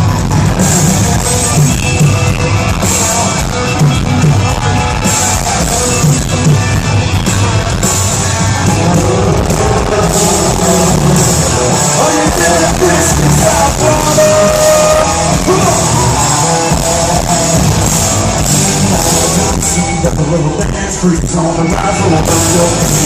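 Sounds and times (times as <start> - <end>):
live country-rock band: 0.0 - 23.0
person singing: 7.9 - 23.0.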